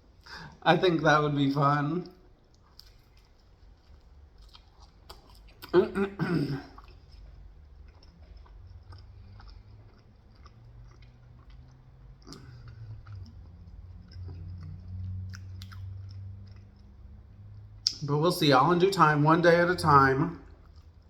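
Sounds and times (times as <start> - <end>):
low steady hum: 0.0 - 21.0
person chewing close up: 2.0 - 18.0, 20.4 - 21.0.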